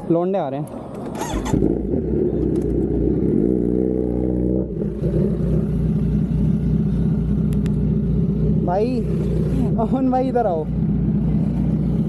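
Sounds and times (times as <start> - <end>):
motorcycle engine rumbling: 0.8 - 12.0.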